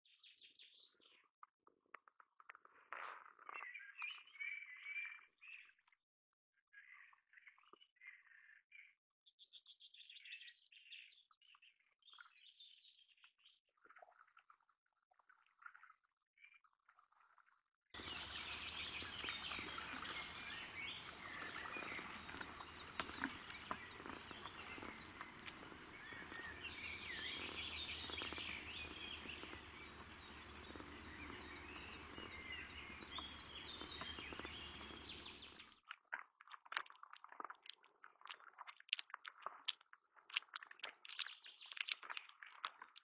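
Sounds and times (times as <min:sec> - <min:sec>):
steady low hum: 0:18.0 - 0:35.6
birds singing and chirping: 0:18.0 - 0:35.7
faint clicks: 0:18.0 - 0:35.7.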